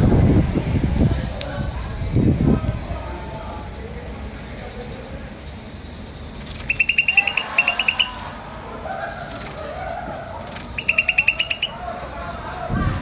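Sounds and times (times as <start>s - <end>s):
faint background murmur: 0.0s - 13.0s
starling chirping: 5.6s - 8.4s, 10.4s - 12.1s.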